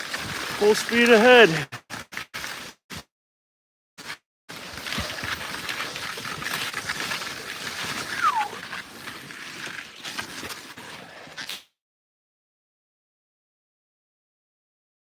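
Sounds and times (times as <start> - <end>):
skis scraping over snow: 0.0 - 1.6, 4.5 - 11.4
short falling squeal: 8.1 - 8.6.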